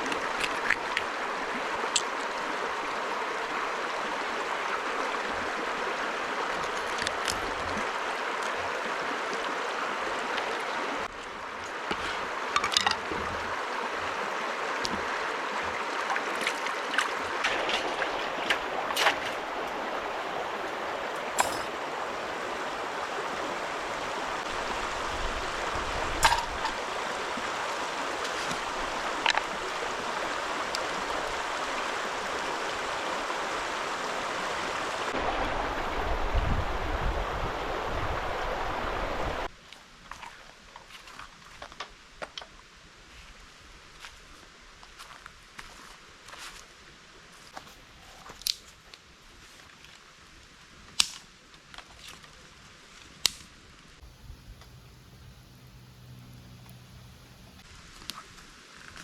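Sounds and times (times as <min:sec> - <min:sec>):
river water rushing: 0:00.0 - 0:39.5.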